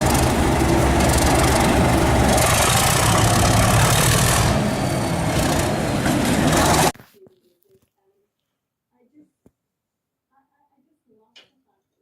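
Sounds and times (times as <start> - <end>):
diesel engine sound from small speaker: 0.0 - 6.9.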